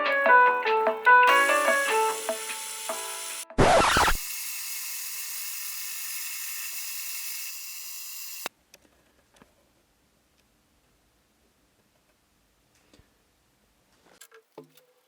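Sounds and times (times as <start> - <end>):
power tool motor whining: 1.3 - 8.5.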